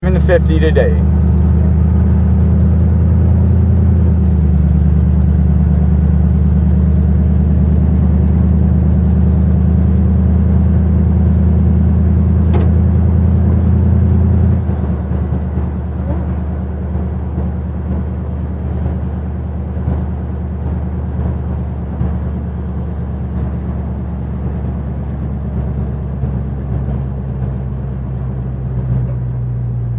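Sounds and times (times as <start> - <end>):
truck engine running: 0.0 - 29.9.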